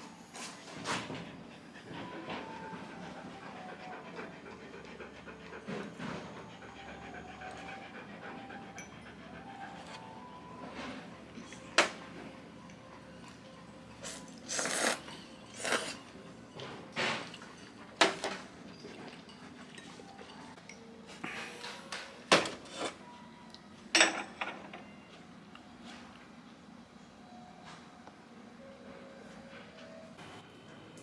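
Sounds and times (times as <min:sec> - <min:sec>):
dishes and utensils clinking: 0:13.3 - 0:23.1, 0:23.9 - 0:25.2.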